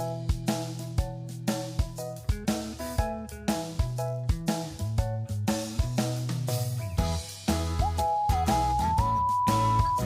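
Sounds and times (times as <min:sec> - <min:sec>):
upbeat music with drum beat: 0:00.0 - 0:10.0
whistled melody: 0:07.5 - 0:10.0.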